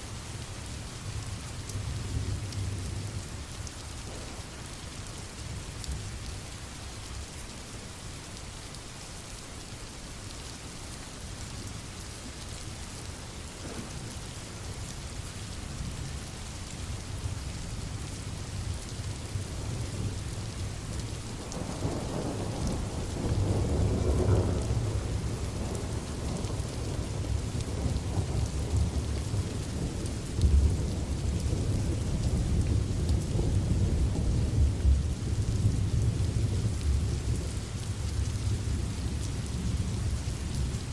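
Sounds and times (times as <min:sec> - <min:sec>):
steady rain: 0:00.0 - 0:40.9
thunder rumbling: 0:04.0 - 0:04.5.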